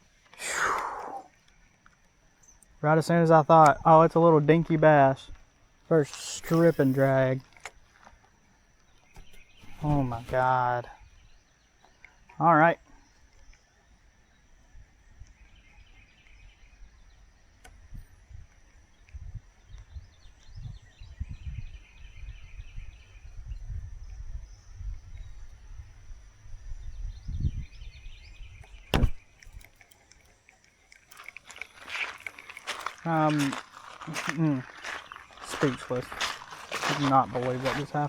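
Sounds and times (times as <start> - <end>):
faint high chirring: 0.0 - 14.8, 26.8 - 38.0
sharp click: 28.6 - 30.3.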